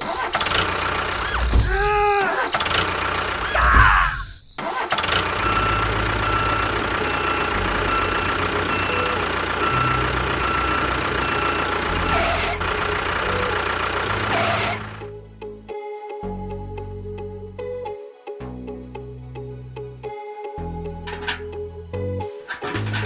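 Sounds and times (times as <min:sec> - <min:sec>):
tractor engine idling: 0:00.0 - 0:15.1, 0:21.0 - 0:21.6, 0:22.2 - 0:23.0.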